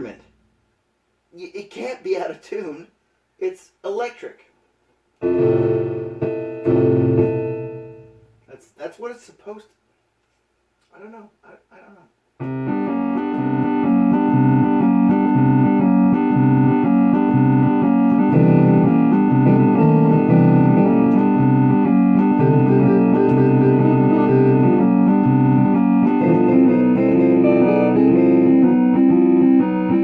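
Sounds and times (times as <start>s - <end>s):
electronic organ chords: 5.2s - 8.5s, 12.4s - 30.0s
organ bass line: 5.2s - 8.5s, 12.4s - 30.0s.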